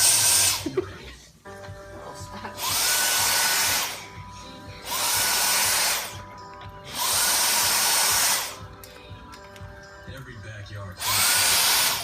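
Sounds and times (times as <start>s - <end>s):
vacuum cleaner suction: 0.0s - 0.6s, 2.6s - 4.1s, 4.8s - 6.2s, 6.9s - 8.6s, 11.0s - 12.0s.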